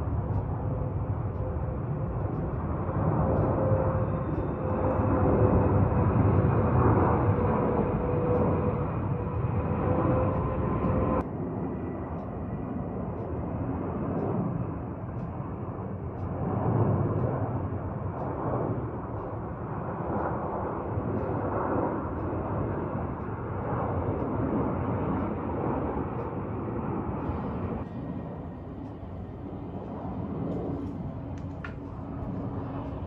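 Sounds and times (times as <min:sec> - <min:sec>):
jet engines roaring: 0:00.0 - 0:33.0
whining tone: 0:27.2 - 0:33.0.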